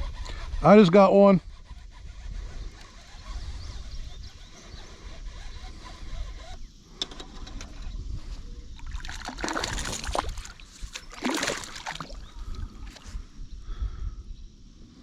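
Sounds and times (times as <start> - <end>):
wind rumble on microphone: 0.0 - 15.0
fish splashing in water: 8.8 - 13.1.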